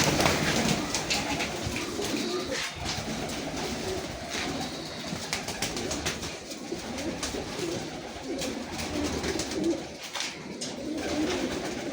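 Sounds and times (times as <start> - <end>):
pigeons cooing: 0.0 - 11.9.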